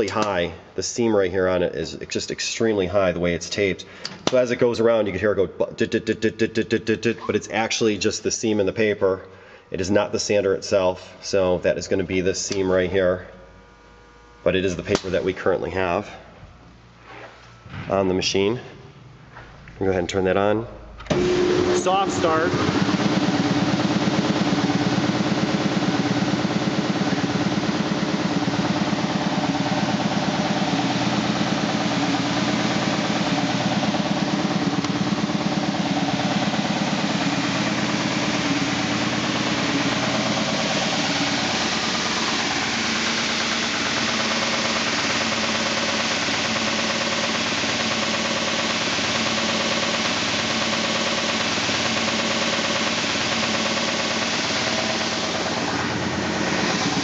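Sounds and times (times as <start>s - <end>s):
belt sander running: 21.0s - 57.0s
fast regular beat of belt seam: 21.6s - 57.0s.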